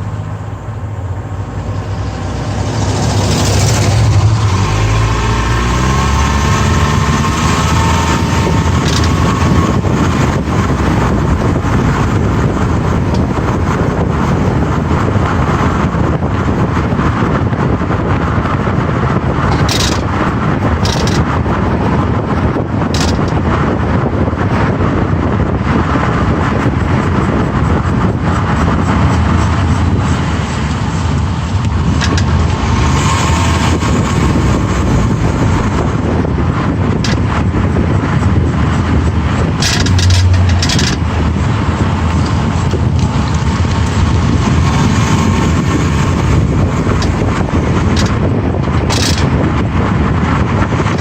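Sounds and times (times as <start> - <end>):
car road rumble: 0.0 - 51.0
short knocks or rattles: 8.8 - 9.7, 19.4 - 21.4, 22.9 - 23.4, 37.0 - 37.4, 39.6 - 41.2, 46.9 - 49.4.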